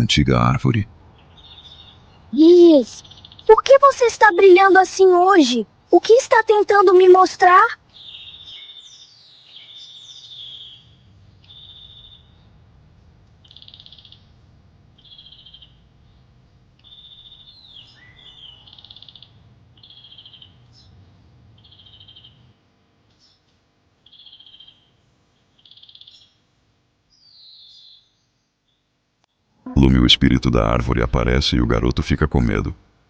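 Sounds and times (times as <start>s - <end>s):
low steady rumble: 10.7s - 13.5s, 14.2s - 16.8s, 29.7s - 33.0s
trilling animal calls: 13.4s - 14.3s, 15.0s - 15.8s, 16.8s - 20.7s.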